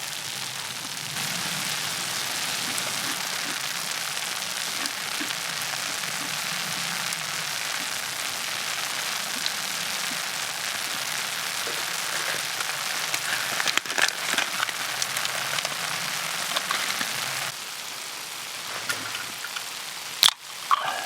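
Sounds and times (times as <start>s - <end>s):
food sizzling on a griddle: 0.0s - 21.0s.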